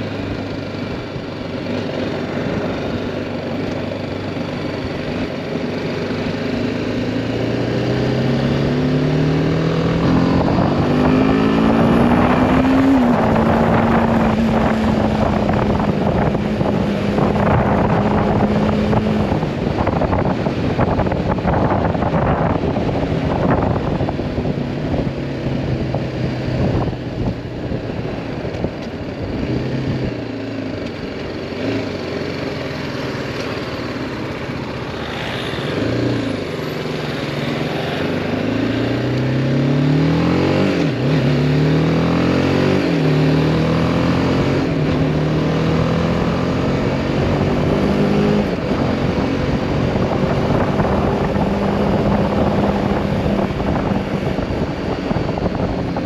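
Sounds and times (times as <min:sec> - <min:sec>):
wind buffeting microphone: 0:09.8 - 0:30.1, 0:44.0 - 0:56.0
motorcycle engine pulling through gears: 0:28.3 - 0:56.0.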